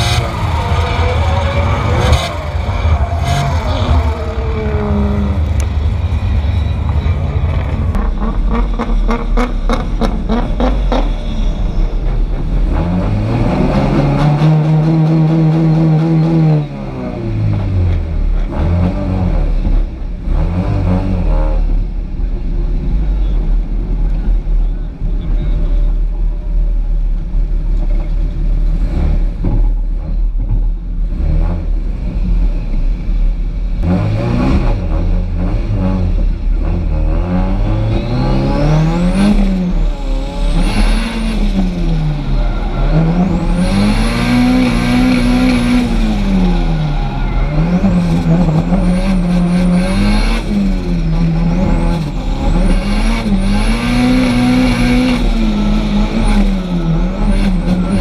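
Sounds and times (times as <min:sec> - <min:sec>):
high engine whine: 0:00.0 - 0:20.2, 0:36.0 - 0:58.0
car engine revving: 0:00.0 - 0:22.1, 0:33.7 - 0:58.0.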